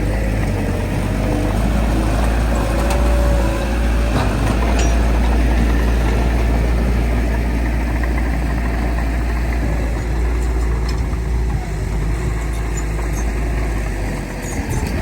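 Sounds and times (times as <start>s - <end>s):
heavy diesel engine drone: 0.0s - 15.0s.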